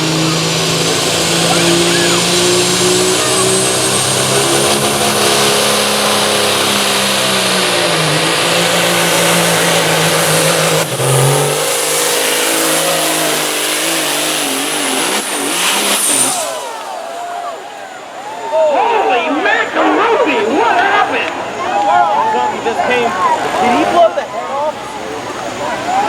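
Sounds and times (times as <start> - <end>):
high turbo whistle: 0.0 - 18.2
diesel truck engine at full throttle: 0.0 - 26.0.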